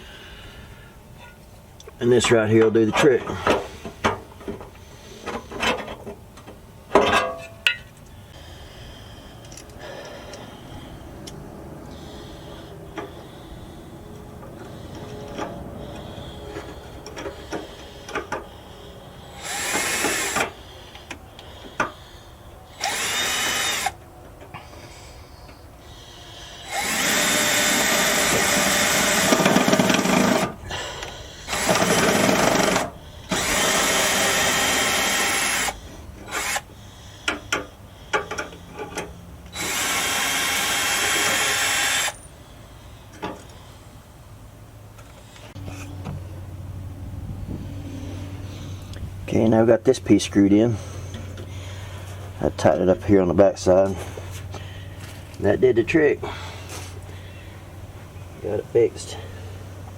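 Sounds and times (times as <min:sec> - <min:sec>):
power drill driving screws: 0:19.3 - 0:20.6, 0:22.8 - 0:24.0, 0:26.6 - 0:30.6, 0:31.5 - 0:36.7, 0:39.5 - 0:42.2.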